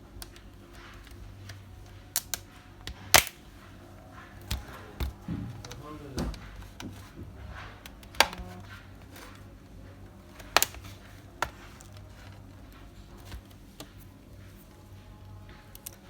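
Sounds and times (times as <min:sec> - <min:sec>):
plastic clips snapping loose: 0:00.3 - 0:03.4, 0:07.8 - 0:08.6, 0:10.4 - 0:12.4.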